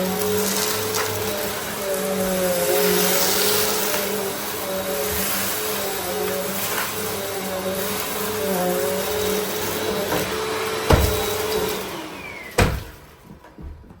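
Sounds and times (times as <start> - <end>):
vacuum cleaner motor whine: 0.0 - 14.0
sharp thumps: 10.1 - 11.7, 12.6 - 14.0.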